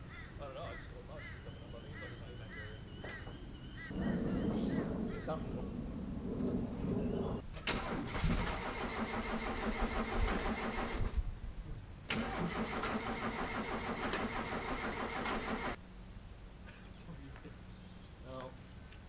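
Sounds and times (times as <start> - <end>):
engine cranking on starter motor: 7.6 - 11.2, 12.1 - 15.8.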